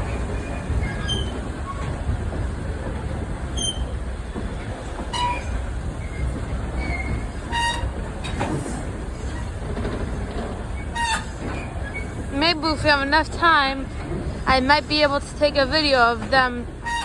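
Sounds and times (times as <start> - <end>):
train rumbling on track: 0.0 - 17.0
high-pitched train squeals: 0.3 - 1.9, 3.5 - 4.0, 5.1 - 9.5, 10.7 - 12.4.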